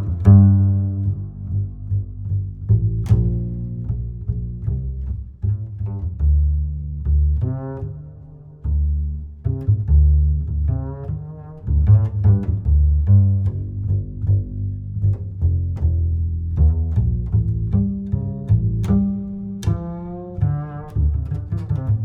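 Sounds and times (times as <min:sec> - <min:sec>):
plucked and bowed bass strings: 0:00.0 - 0:22.0.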